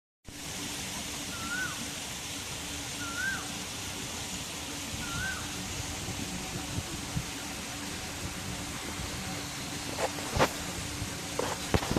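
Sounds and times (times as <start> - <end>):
steady rushing noise: 0.3 - 11.9
bird whistled call: 1.3 - 1.8, 3.0 - 3.5, 5.0 - 5.5.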